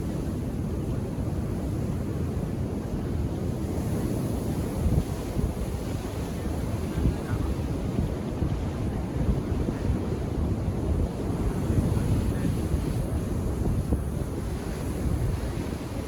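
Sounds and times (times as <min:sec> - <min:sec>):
wind buffeting microphone: 0:03.4 - 0:16.0.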